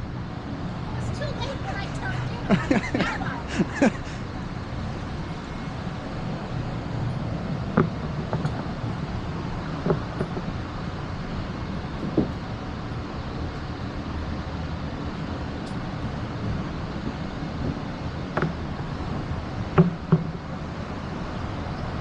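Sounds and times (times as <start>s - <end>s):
vehicle engine running: 0.0s - 16.8s.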